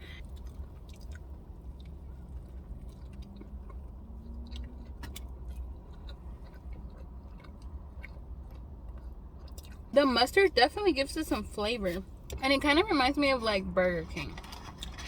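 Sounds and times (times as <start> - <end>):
chewing food: 0.0 - 9.9, 14.4 - 15.0.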